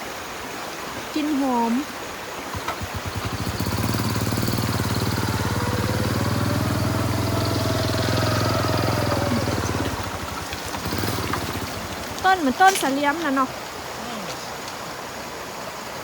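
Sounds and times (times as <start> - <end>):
small engine running: 2.5 - 13.4.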